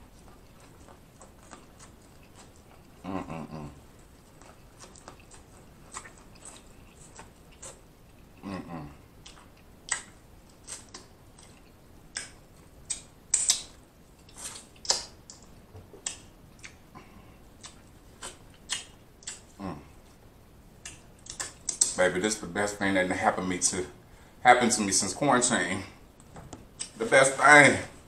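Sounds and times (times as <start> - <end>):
person humming mm: 3.0 - 3.8, 8.4 - 9.0, 19.6 - 20.0.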